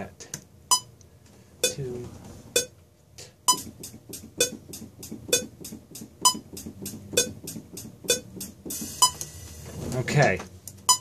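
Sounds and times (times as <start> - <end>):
metronome clicking: 1.6 - 1.8, 3.5 - 9.3, 10.7 - 11.0
hi-hat ticking: 1.6 - 9.7, 10.6 - 11.0.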